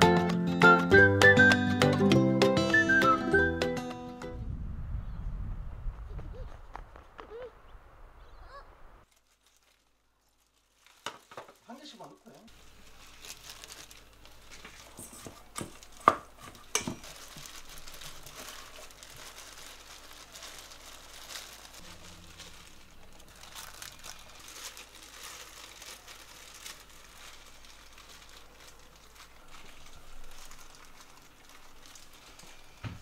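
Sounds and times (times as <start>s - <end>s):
plastic glove crinkling: 8.5s - 33.0s.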